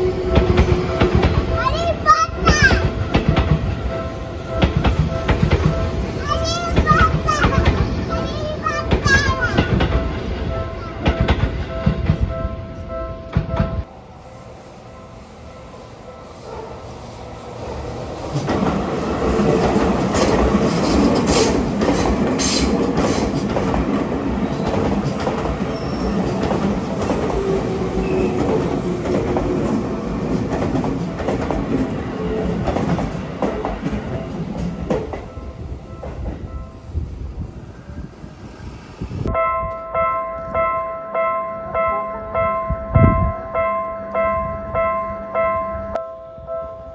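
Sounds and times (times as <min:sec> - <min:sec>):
electric train passing: 0:00.0 - 0:46.9
wheels clicking over rail joints: 0:18.1 - 0:35.4.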